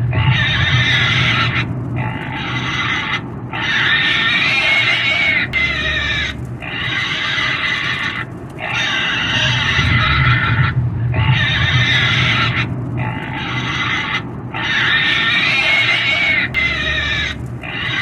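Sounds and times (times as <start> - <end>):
pig squealing: 0.0 - 18.0.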